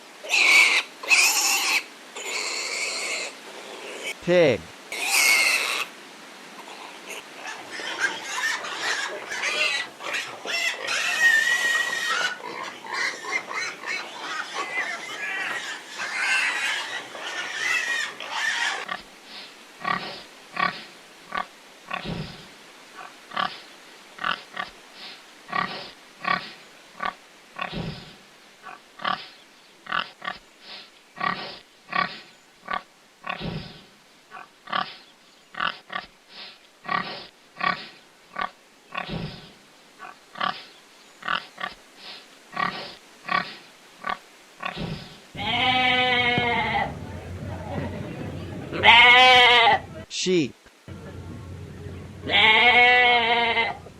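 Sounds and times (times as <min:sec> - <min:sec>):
pigs squealing and grunting: 0:00.2 - 0:04.2, 0:04.9 - 0:05.9, 0:06.6 - 0:19.0, 0:19.8 - 0:22.4, 0:25.5 - 0:28.0, 0:28.6 - 0:29.3, 0:31.2 - 0:35.0, 0:36.9 - 0:39.4, 0:42.6 - 0:47.1, 0:48.7 - 0:49.9, 0:52.2 - 0:53.9
pig grunting: 0:19.8 - 0:22.4, 0:31.2 - 0:35.0, 0:36.9 - 0:40.6, 0:42.6 - 0:50.0, 0:51.1 - 0:53.9.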